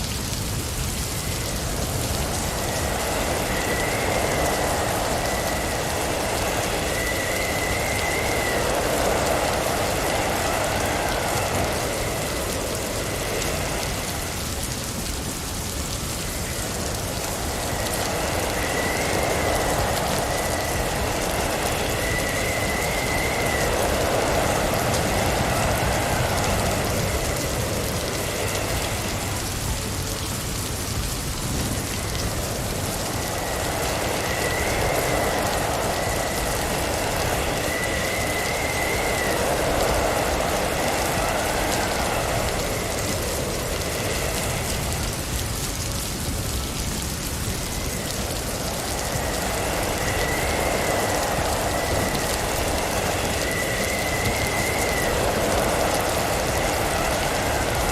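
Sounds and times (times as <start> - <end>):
blizzard wind and snow hissing: 0.0 - 57.9
faint high whistle: 2.8 - 14.4, 33.2 - 43.4.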